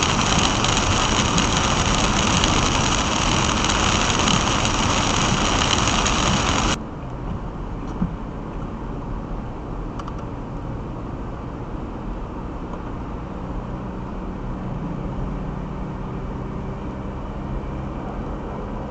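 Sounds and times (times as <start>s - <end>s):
low hum: 0.0s - 6.9s
car road and engine noise: 0.0s - 18.9s.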